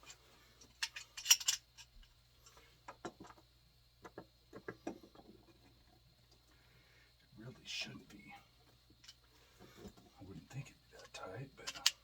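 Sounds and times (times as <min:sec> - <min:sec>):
metal hand tools clinking: 0:00.0 - 0:01.9, 0:11.6 - 0:12.0.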